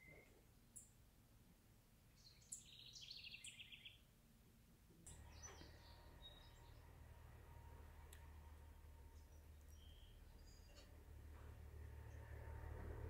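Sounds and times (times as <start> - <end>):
faint songbird singing: 0.0 - 1.0, 2.0 - 4.1, 5.0 - 12.4
low steady hum: 4.0 - 13.0.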